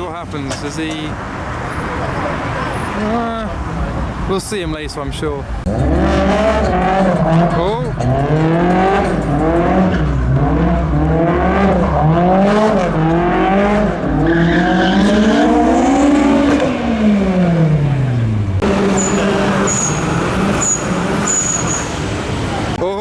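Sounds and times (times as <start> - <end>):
car engine revving: 5.1 - 22.8
tyre squeal: 18.6 - 22.2.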